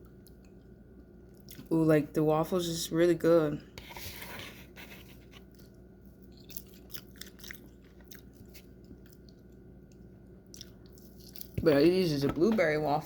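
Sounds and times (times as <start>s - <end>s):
person chewing food: 0.0s - 1.7s, 5.2s - 11.6s.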